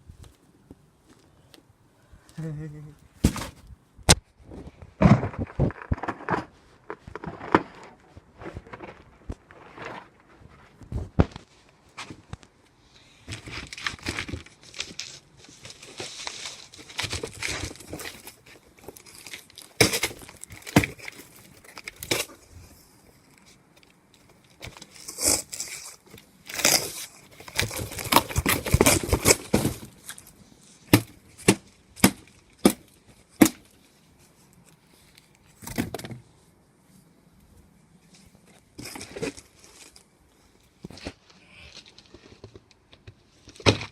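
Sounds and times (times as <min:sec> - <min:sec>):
cardboard box crushed and torn: 0:03.2 - 0:03.7, 0:13.3 - 0:22.3, 0:24.6 - 0:30.2, 0:30.9 - 0:33.7
pole hitting cardboard box: 0:03.2 - 0:04.2, 0:19.8 - 0:21.0, 0:27.5 - 0:29.9, 0:30.9 - 0:32.8.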